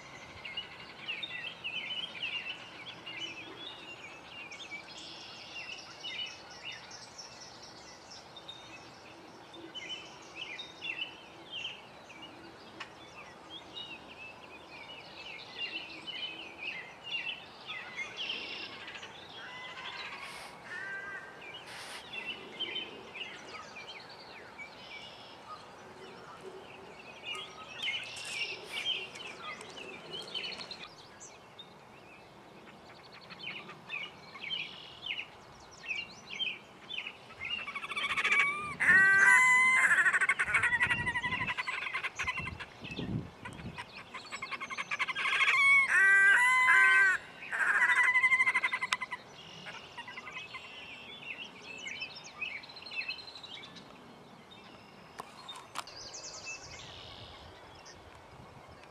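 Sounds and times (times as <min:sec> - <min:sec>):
songbirds chirping and twittering: 0:00.0 - 0:58.9.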